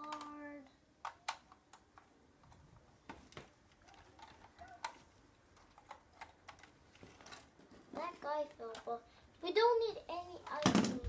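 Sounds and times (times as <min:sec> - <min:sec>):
plastic lego pieces clicking: 0:00.0 - 0:02.6, 0:03.7 - 0:07.5.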